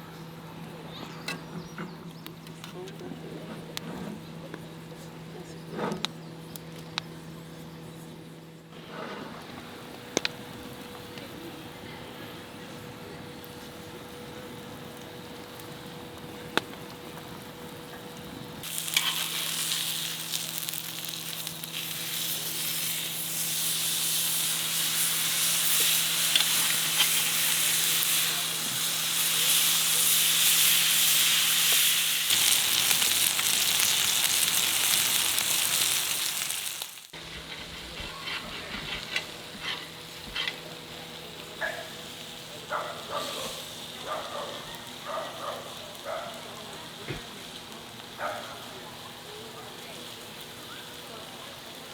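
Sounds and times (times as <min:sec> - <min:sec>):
food sizzling in hot grease: 0:18.6 - 0:37.4.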